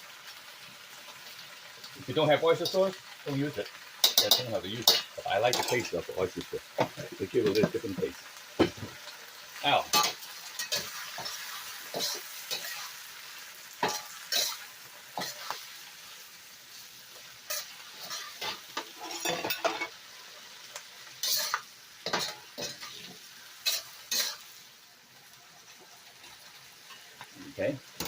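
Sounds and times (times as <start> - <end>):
food sizzling in a hot pan: 0.0 - 28.0
spatula scraping a pan: 9.9 - 16.1, 17.0 - 24.6.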